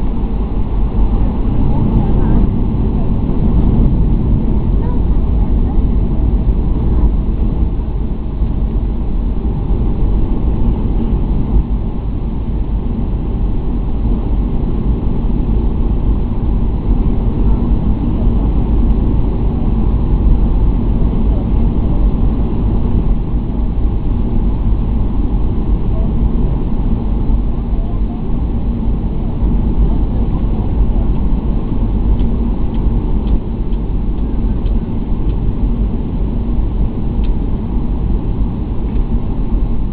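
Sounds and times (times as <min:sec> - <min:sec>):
airliner engines from cabin: 0:00.0 - 0:39.9.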